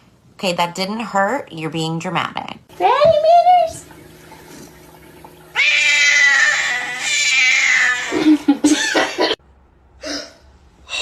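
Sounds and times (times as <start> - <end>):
cat yowling: 5.6 - 8.2.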